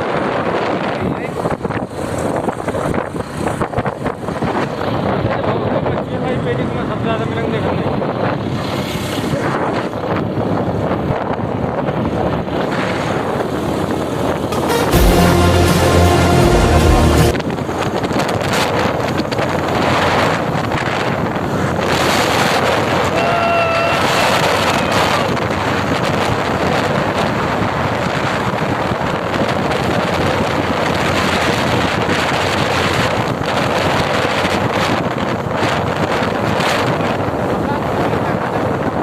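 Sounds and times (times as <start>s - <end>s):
wind buffeting microphone: 0.0s - 14.6s, 17.3s - 39.0s
background music: 14.5s - 17.4s
short horn: 14.5s - 17.5s.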